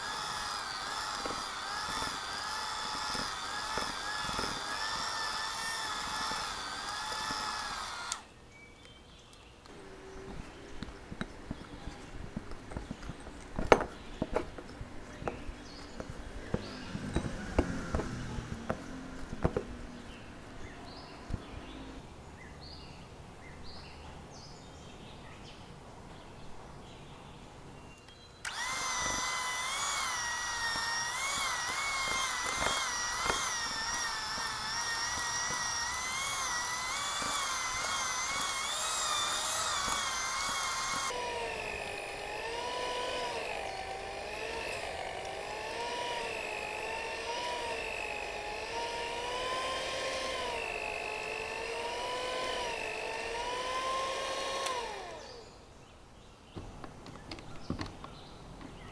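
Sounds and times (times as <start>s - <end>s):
electric mixer motor running: 0.0s - 8.3s, 15.2s - 20.1s, 28.5s - 55.5s.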